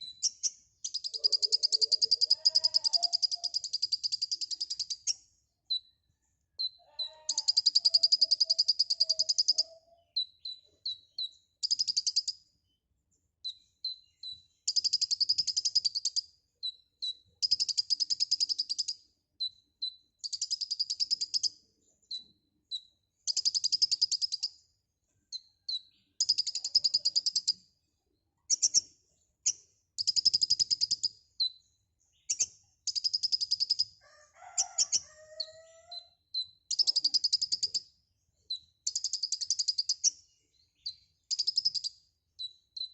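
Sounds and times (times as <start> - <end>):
bird singing high trills: 0.0 - 5.9
bird chirps: 0.0 - 42.9.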